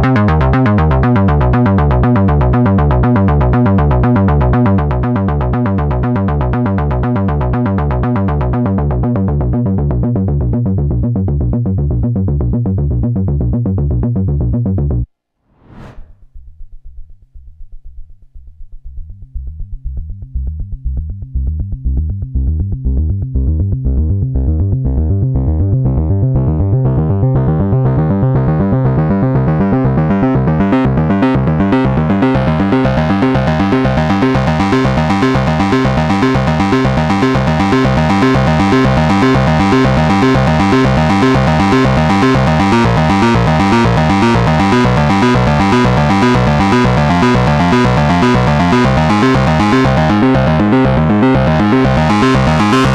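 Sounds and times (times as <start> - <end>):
synthesizer arpeggio: 31.2 - 52.9.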